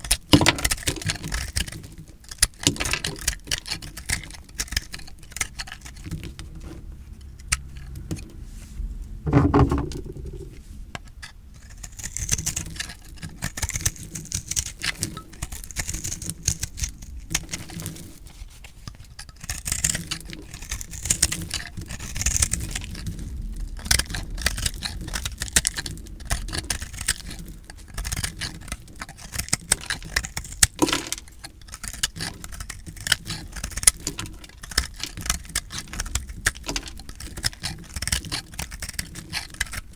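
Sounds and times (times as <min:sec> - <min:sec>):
heavy thud: 0:08.9 - 0:10.6
soap crunching under blade: 0:23.8 - 0:39.9.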